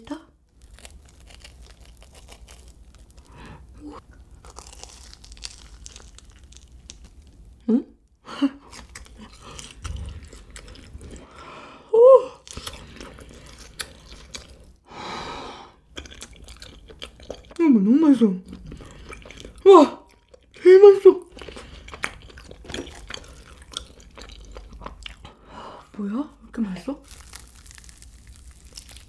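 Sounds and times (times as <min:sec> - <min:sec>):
chewing with wet mouth sounds: 0:08.7 - 0:11.4, 0:12.4 - 0:14.8, 0:15.9 - 0:17.6, 0:18.4 - 0:20.6, 0:21.2 - 0:25.4, 0:27.0 - 0:29.0
breathy exhale: 0:14.9 - 0:15.8.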